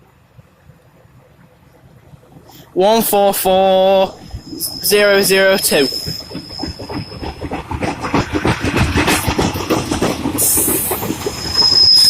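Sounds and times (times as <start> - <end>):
high wheel squeal: 3.5 - 12.0
train wheels clattering: 4.3 - 12.0.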